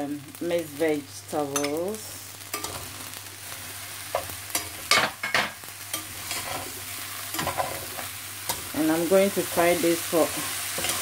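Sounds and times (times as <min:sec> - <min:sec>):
fried rice sizzling in a pan: 0:00.0 - 0:11.0
spatula scraping and knocking pan: 0:04.1 - 0:08.7.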